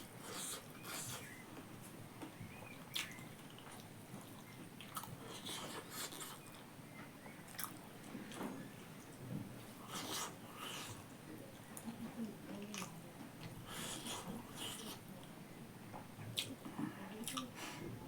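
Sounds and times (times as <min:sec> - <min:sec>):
person chewing: 0:00.2 - 0:01.4, 0:02.9 - 0:06.6, 0:07.5 - 0:07.8, 0:09.8 - 0:11.0, 0:12.7 - 0:15.0.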